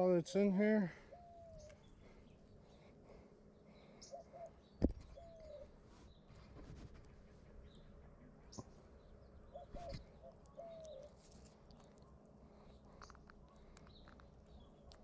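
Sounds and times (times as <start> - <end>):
bird whistling faintly: 4.0 - 5.7.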